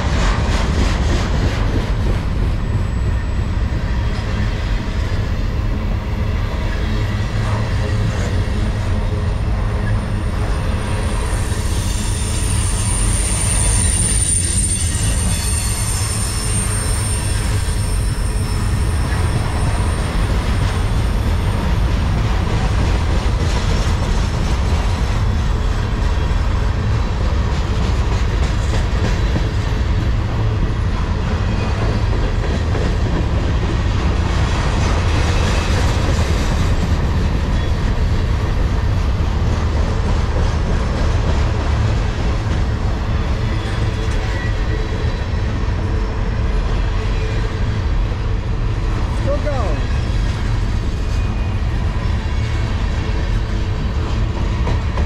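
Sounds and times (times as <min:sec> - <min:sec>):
freight train rumbling past: 0:00.0 - 0:55.0
high wheel squeal: 0:09.8 - 0:20.4.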